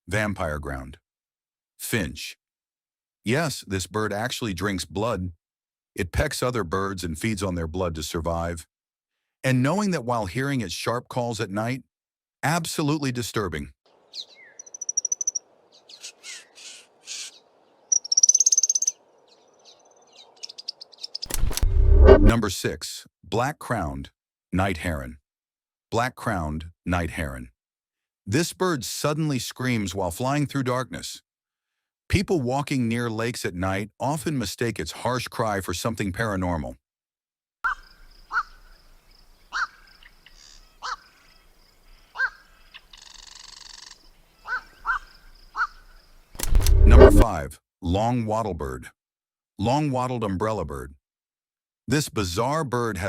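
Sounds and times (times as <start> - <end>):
bird high-pitched trill: 14.2 - 15.4, 17.9 - 19.0
heron giving harsh quok calls: 37.7 - 38.7, 39.5 - 39.9, 40.8 - 41.1, 42.2 - 45.9.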